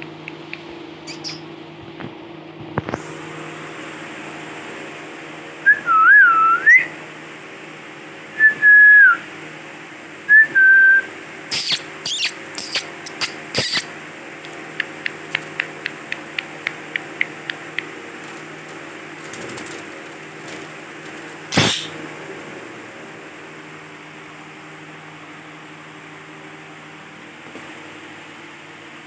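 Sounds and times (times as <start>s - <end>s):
parakeet whistled calls: 1.0s - 1.5s, 10.3s - 14.0s, 21.5s - 22.0s
parakeet harsh squawks: 1.1s - 1.4s, 11.5s - 14.0s, 21.5s - 22.0s
fast short sharp bird calls: 11.5s - 14.0s, 21.5s - 22.0s.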